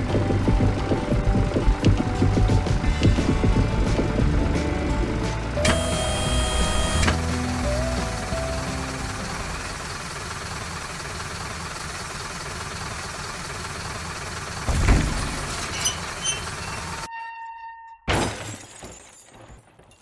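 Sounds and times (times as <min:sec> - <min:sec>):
steady mechanical running noise: 0:00.0 - 0:17.1
heavy thump: 0:14.7 - 0:15.6
sudden crash: 0:14.7 - 0:15.8
brief ringing tone: 0:17.1 - 0:18.0.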